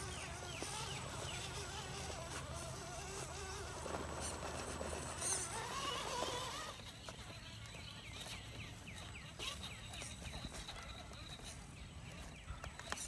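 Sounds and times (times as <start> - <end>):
rc truck electric motor whining: 0.0 - 10.7
bird chirping: 6.5 - 13.0.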